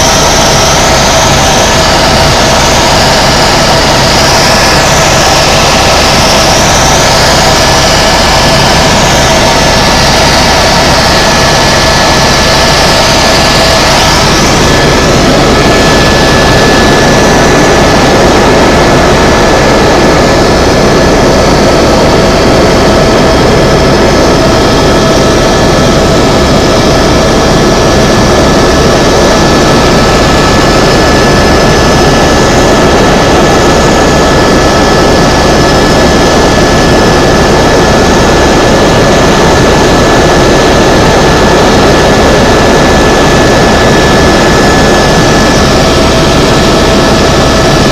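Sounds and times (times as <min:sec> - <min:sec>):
helicopter engine and rotor drone: 0:00.0 - 0:47.9
high whining tones: 0:00.0 - 0:47.9.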